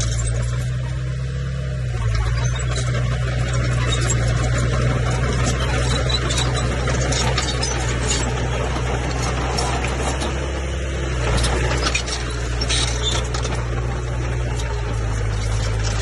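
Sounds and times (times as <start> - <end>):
bulldozer diesel engine humming: 0.0 - 16.0.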